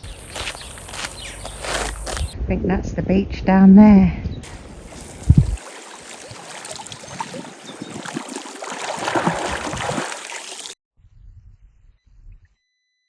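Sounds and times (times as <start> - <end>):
water lapping and splashing: 4.4 - 10.8.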